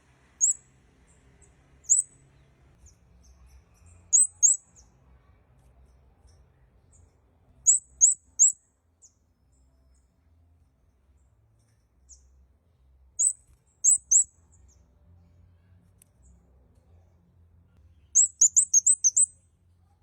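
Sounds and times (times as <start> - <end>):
bird chirping high and sharp: 0.4 - 0.7, 1.8 - 2.2, 4.0 - 4.9, 7.6 - 8.6, 13.2 - 14.3, 18.0 - 19.4.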